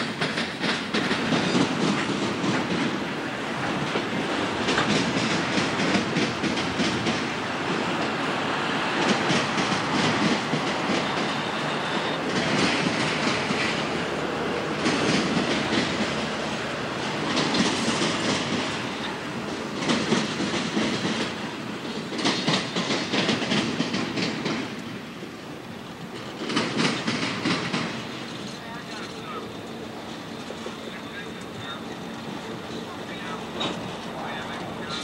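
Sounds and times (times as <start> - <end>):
diesel locomotive engines running: 0.0 - 35.0
wheels clicking over rail joints: 0.0 - 35.0.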